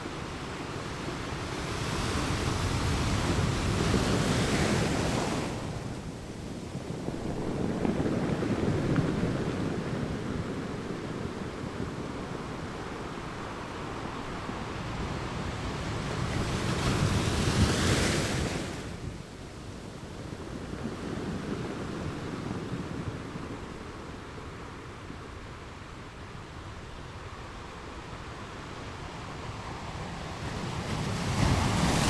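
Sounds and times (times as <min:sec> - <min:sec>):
sea waves washing on shore: 0:29.1 - 0:32.0.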